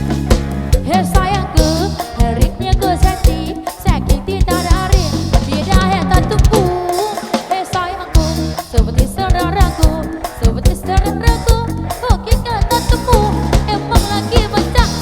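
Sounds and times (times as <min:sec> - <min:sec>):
bass: 0:00.0 - 0:07.2, 0:07.8 - 0:15.0
drum kit beat: 0:00.0 - 0:15.0
person singing with vibrato: 0:00.8 - 0:15.0.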